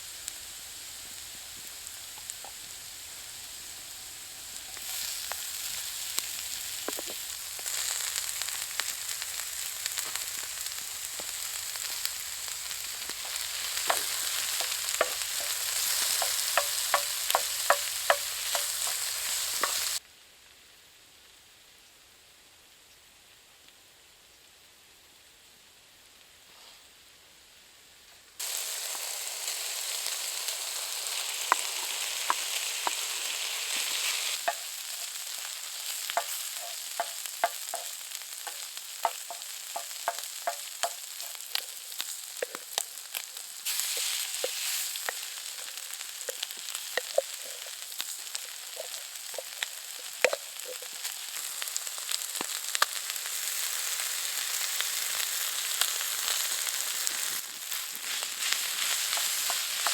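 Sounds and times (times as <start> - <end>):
food sizzling in a hot pan: 0.0 - 20.7, 28.4 - 59.9
popping and crackling oil: 4.5 - 20.0, 28.4 - 59.9.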